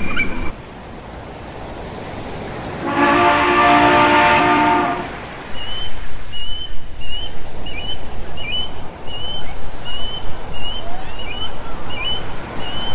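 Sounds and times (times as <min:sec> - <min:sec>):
sea surf: 0:00.0 - 0:12.9
bird chirping: 0:05.6 - 0:12.9.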